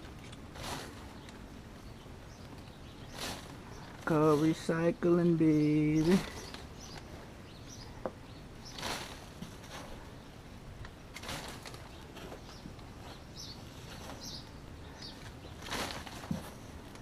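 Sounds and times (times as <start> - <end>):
small birds chirping: 0.0 - 17.0
shovel scraping soil: 0.2 - 1.3, 3.1 - 4.6.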